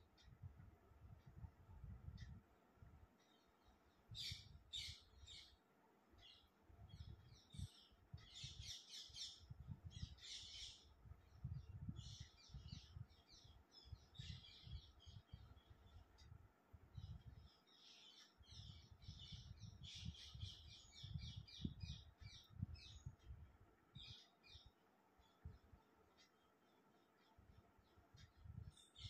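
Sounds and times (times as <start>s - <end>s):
small birds chirping: 0.0s - 29.0s
low unsteady rumble: 6.3s - 17.6s.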